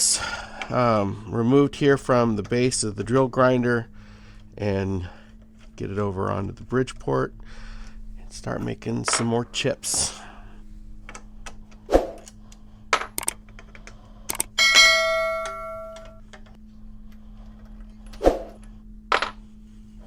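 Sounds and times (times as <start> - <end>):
metal tools clunking: 8.6 - 10.2
struck metal ringing: 14.6 - 16.2.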